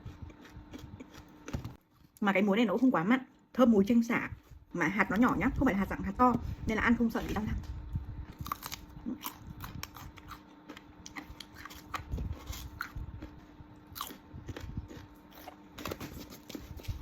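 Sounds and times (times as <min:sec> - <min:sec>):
person chewing crunchy fruit: 0:00.0 - 0:02.2, 0:08.0 - 0:17.0.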